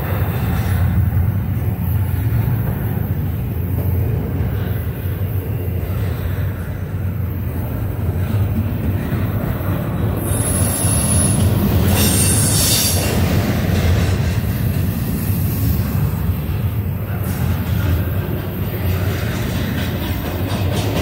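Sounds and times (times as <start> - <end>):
freight train rolling past: 0.0 - 21.0
wheels squealing: 9.0 - 13.4.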